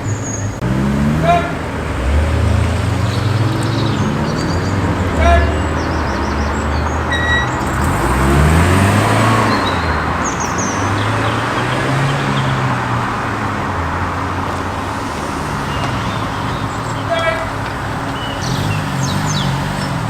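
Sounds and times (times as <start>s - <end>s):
car engines passing: 0.0s - 20.0s
tyre noise: 0.0s - 20.0s.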